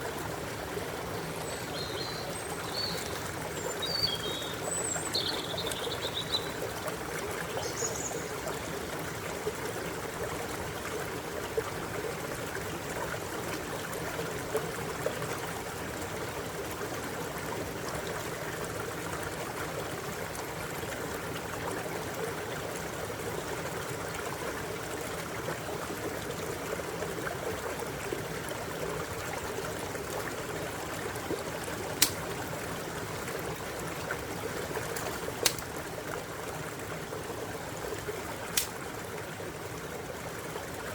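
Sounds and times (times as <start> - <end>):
stream water babbling over stones: 0.0 - 40.9
sharp clicks: 32.0 - 32.2, 35.0 - 35.7, 38.6 - 38.8.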